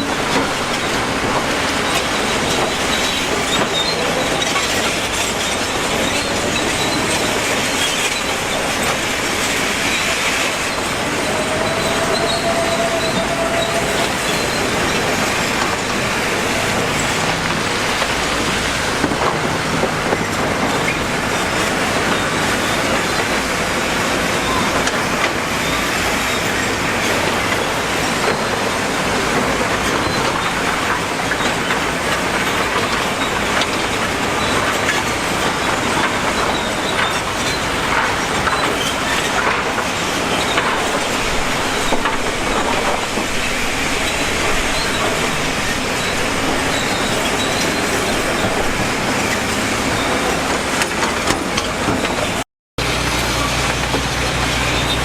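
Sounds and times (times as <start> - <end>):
heavy construction machinery running: 0.0 - 55.0
squealing: 1.8 - 17.4.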